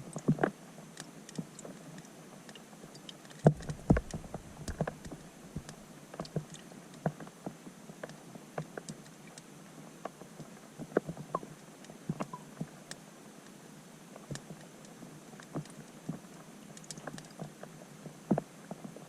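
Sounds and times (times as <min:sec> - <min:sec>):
rain drops hitting water underwater: 0:00.0 - 0:19.0
deep underwater thumps: 0:03.5 - 0:04.8.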